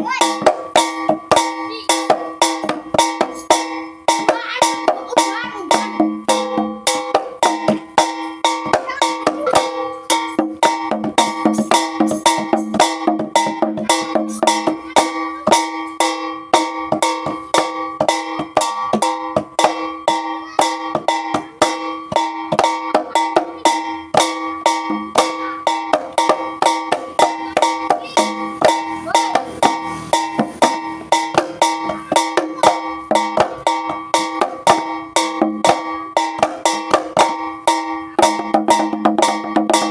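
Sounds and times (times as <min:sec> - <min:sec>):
gamelan music: 0:00.0 - 0:39.9.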